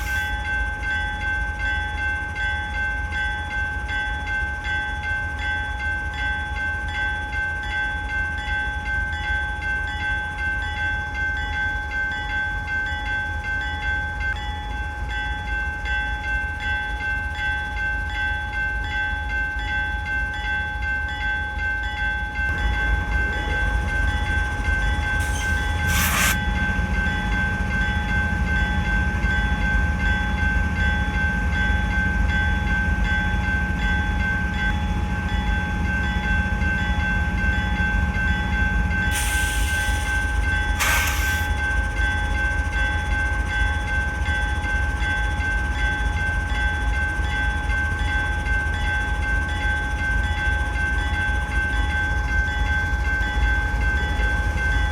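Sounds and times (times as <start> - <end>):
high-pitched whine: 0.0 - 0.8, 22.5 - 27.4, 39.1 - 41.8
freight train rumbling: 0.0 - 54.9.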